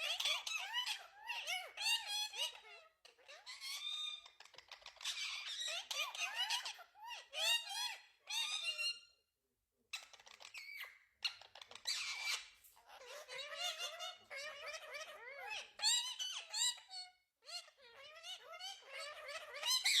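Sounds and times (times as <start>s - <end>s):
parakeet chattering: 10.0s - 20.0s.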